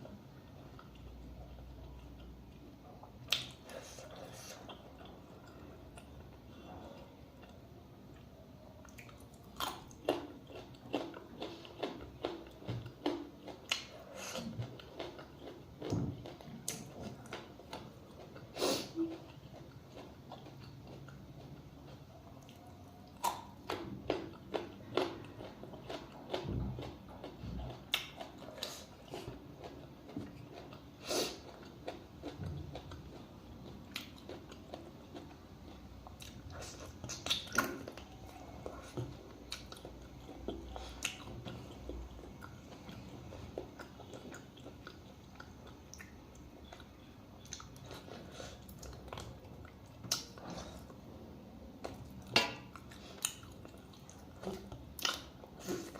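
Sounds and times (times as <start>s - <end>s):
person chewing food: 0.0s - 55.9s.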